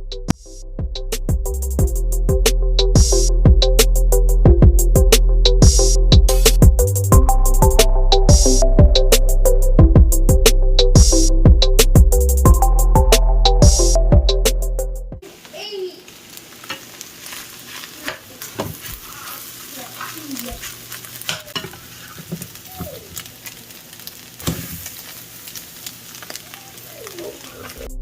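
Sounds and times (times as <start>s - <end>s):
batter sizzling in frying pan: 15.2s - 27.9s
cooking utensil clicks and scrapes: 16.6s - 22.6s.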